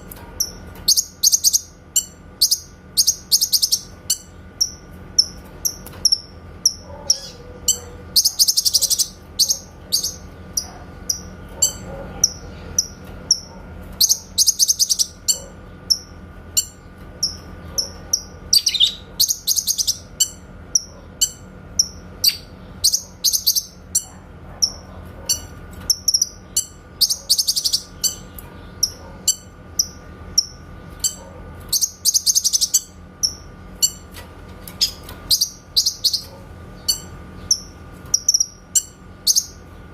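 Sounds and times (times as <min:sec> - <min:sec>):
faint steady hum: 0:00.0 - 0:39.9
bird singing rapid chirps: 0:00.4 - 0:34.0, 0:34.8 - 0:39.8.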